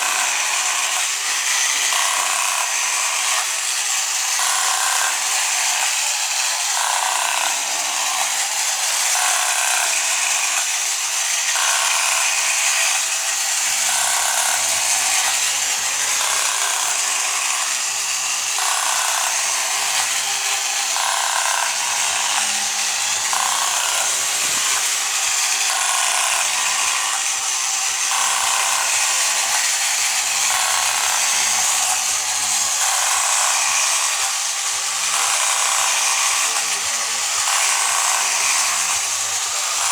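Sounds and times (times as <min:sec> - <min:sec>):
toy motor and gears running: 0:00.0 - 0:39.9.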